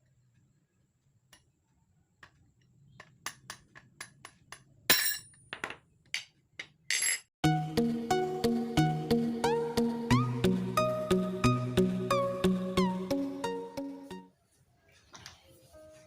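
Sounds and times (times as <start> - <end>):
music: 7.4 - 14.3, 15.7 - 16.0.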